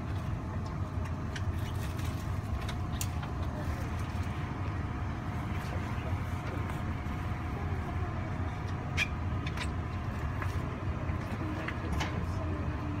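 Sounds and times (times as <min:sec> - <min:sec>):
faint steady hum: 0:00.0 - 0:13.0
train carriage rumble: 0:00.0 - 0:13.0.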